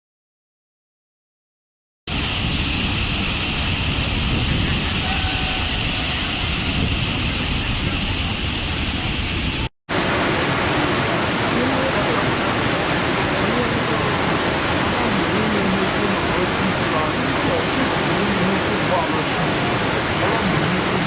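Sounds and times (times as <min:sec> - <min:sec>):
waterfall roaring: 0:02.1 - 0:21.0.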